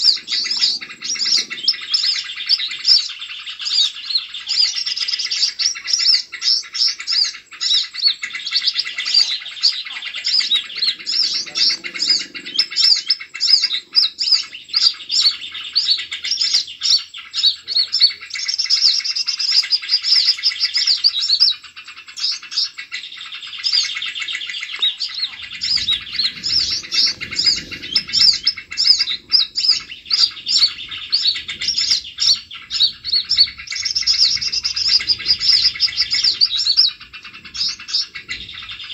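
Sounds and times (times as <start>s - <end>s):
songbirds chirping and trilling: 0.0s - 38.9s
faint low rustling: 25.1s - 38.9s.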